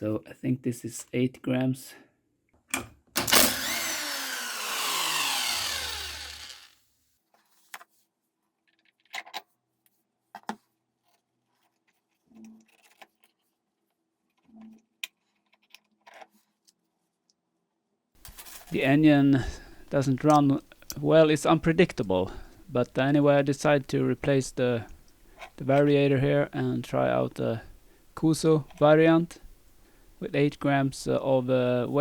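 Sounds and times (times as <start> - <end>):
faint steady hum: 3.2 - 6.7, 18.2 - 32.0
power tool winding down: 3.2 - 6.8.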